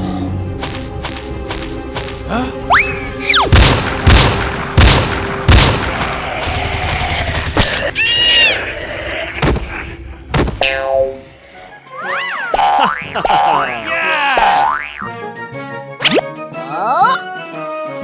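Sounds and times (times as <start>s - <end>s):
background music: 0.0s - 7.7s
cartoon whistle rising and falling: 8.0s - 8.6s.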